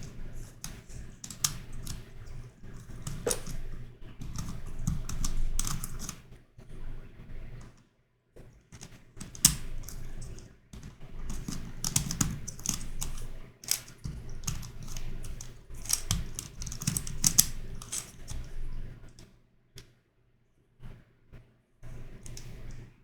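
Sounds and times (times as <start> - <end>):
plastic puzzle clicking: 0.0 - 6.2, 8.8 - 18.6.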